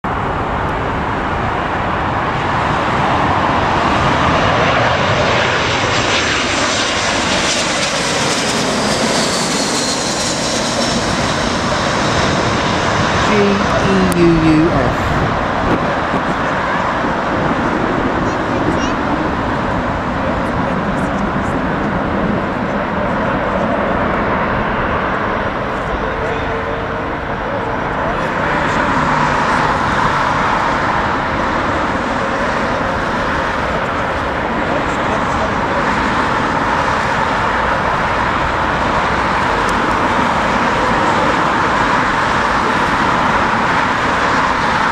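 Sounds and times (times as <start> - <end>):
jet airliner engines: 0.0 - 44.9
wind buffeting microphone: 14.7 - 23.1.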